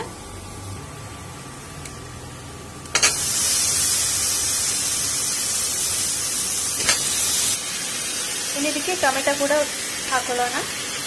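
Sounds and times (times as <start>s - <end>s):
high sizzle in hot oil: 2.9s - 11.0s.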